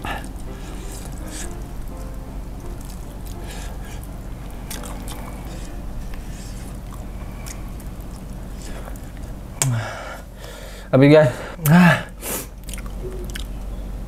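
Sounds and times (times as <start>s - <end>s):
wet sticky chewing: 2.6s - 9.7s, 12.5s - 13.7s.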